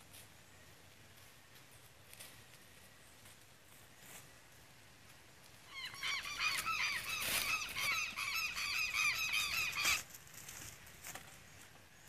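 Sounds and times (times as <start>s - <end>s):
birds squawking: 5.7s - 10.1s.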